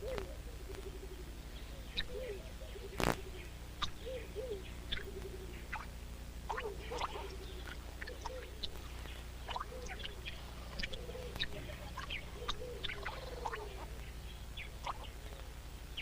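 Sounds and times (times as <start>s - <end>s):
faint wavering animal calls: 0.0s - 16.0s
steady low hum: 0.0s - 16.0s
water dripping into a pool: 9.4s - 11.5s.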